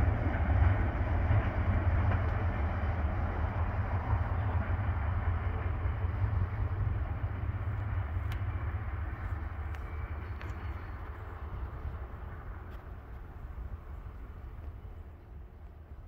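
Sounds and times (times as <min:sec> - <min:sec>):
freight train cars rolling: 0:00.0 - 0:16.0.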